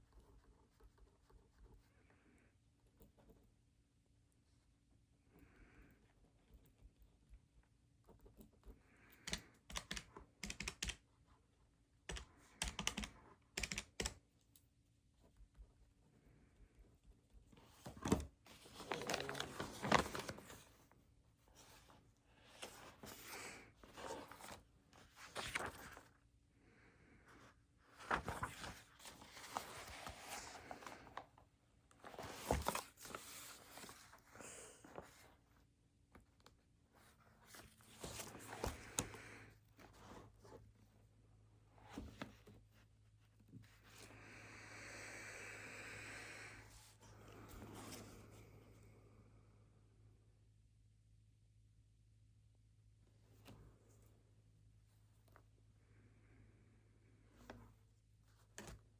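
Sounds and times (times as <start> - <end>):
rustling on a desk: 27.9 - 35.6.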